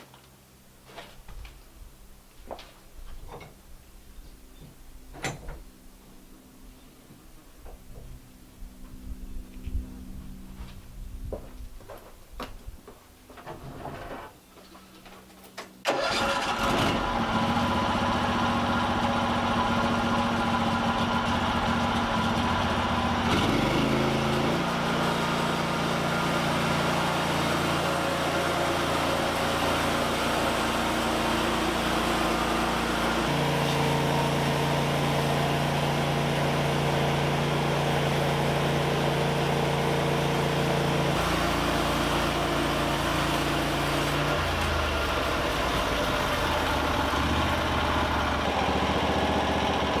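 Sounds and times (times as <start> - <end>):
small engine running: 15.9 - 50.0.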